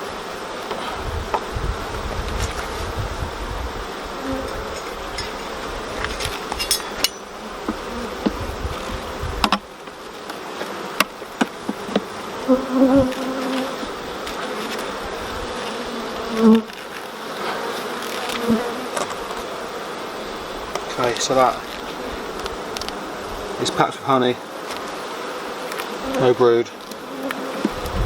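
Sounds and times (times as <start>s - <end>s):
bees passing close: 0.0s - 28.0s
honeybees buzzing: 0.0s - 28.0s
hive frames clicking and knocking: 4.3s - 19.5s, 20.7s - 23.0s, 24.5s - 28.0s.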